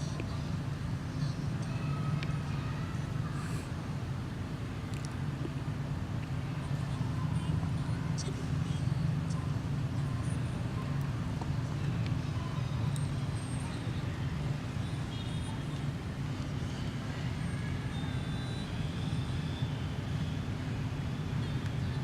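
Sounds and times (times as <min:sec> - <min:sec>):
low motor-like rumble: 0:00.0 - 0:22.0.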